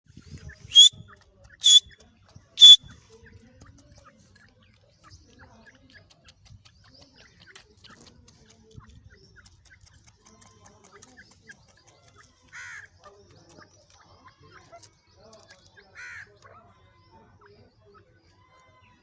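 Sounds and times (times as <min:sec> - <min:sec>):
francolin calling: 0:00.7 - 0:00.9, 0:01.6 - 0:01.9, 0:02.6 - 0:02.8.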